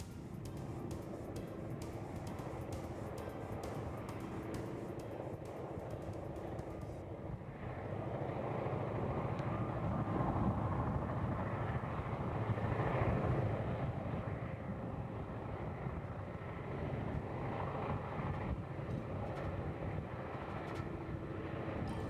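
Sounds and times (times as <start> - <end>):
train wheels rolling: 0.0 - 7.0.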